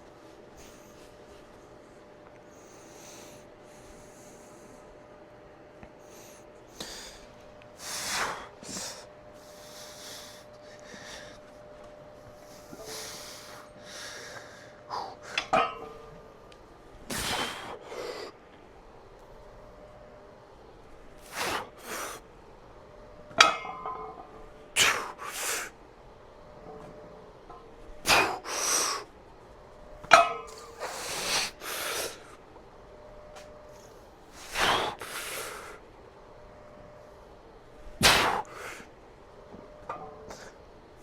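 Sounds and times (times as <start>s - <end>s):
metallic clinks of barbell plates: 23.4s - 24.4s.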